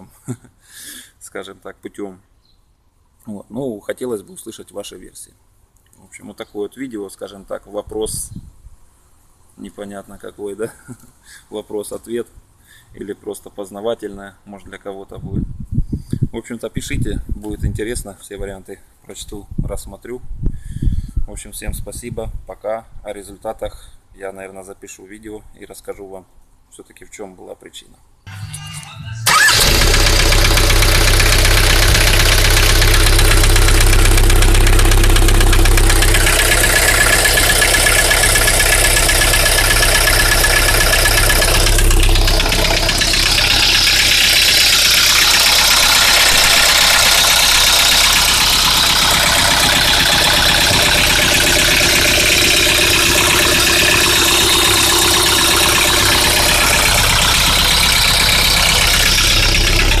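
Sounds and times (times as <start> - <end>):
diesel engine idling with knock: 29.2 - 60.0.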